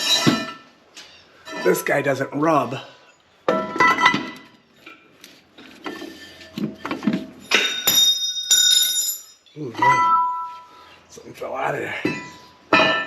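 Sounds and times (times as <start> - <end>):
metal tools clanking: 5.8 - 10.7.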